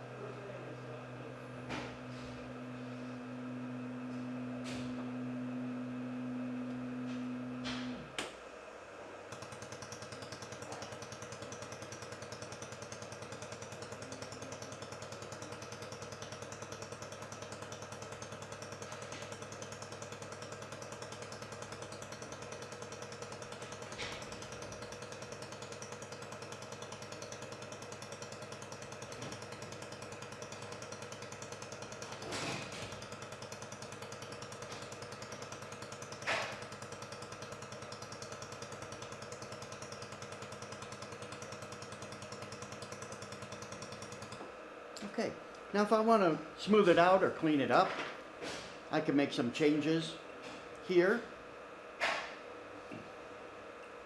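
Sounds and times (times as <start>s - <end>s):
machine hum: 0.0s - 27.6s
laser welder pulsing crackle: 9.2s - 44.4s.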